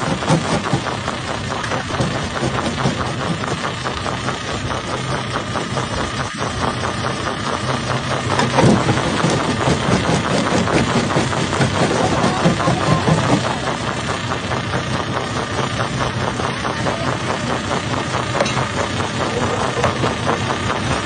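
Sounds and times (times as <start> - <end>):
crusher engine running: 0.0 - 21.0.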